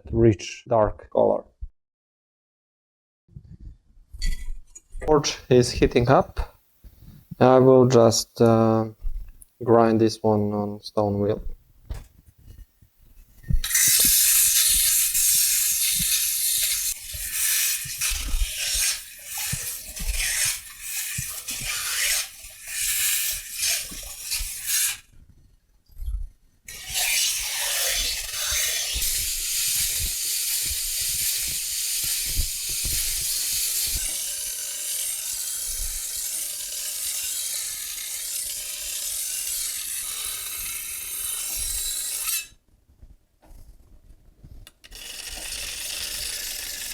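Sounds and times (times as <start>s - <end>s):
metal grinding on grinding wheel: 13.5s - 25.1s, 26.7s - 42.6s, 44.7s - 46.9s.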